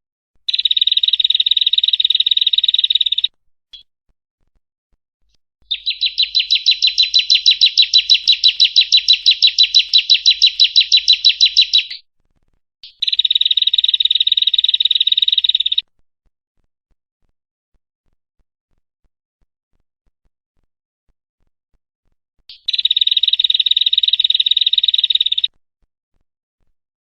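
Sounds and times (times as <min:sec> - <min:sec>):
bird buzzy trill: 0:00.5 - 0:03.3, 0:05.7 - 0:12.0, 0:12.8 - 0:15.8, 0:22.5 - 0:25.5
bird sharp chip notes: 0:05.7 - 0:12.0.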